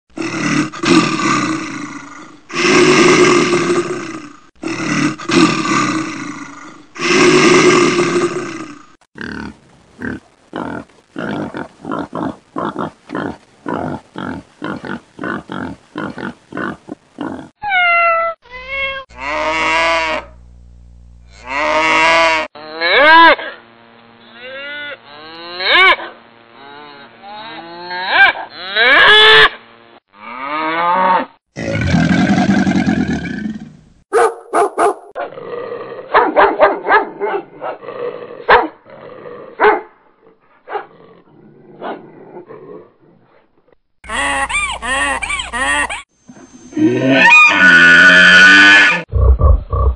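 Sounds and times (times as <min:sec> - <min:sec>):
cow mooing: 0:19.1 - 0:20.4, 0:21.3 - 0:23.4.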